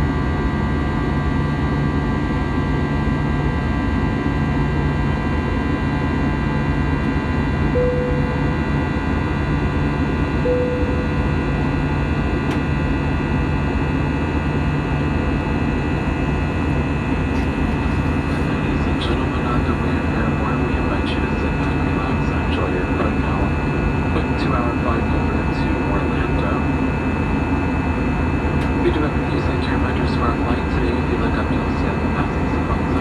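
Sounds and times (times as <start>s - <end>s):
aircraft cabin engine roar: 0.0s - 33.0s
low hum: 7.0s - 33.0s
short beeps: 7.8s - 8.8s, 10.5s - 11.7s.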